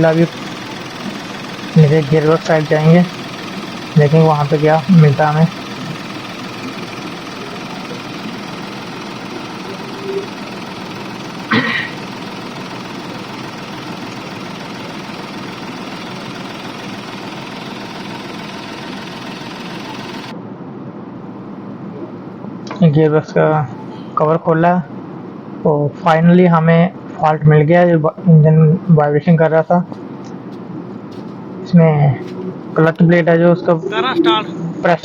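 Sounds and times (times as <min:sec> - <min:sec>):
diesel engine knocking: 0:00.0 - 0:20.3.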